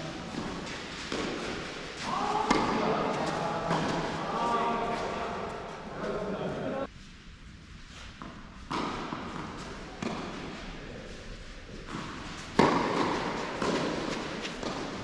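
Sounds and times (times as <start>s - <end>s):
tennis ball hits echoing: 2.4s - 3.0s, 12.5s - 15.0s.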